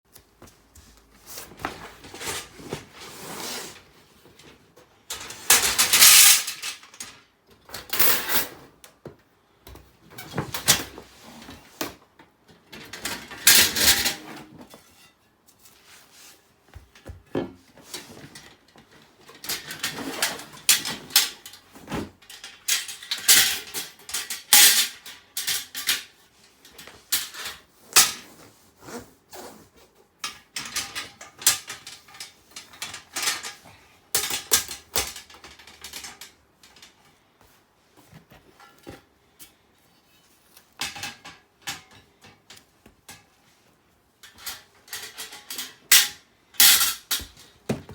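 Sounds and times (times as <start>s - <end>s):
metal clanks and scrapes: 44.2s - 47.4s.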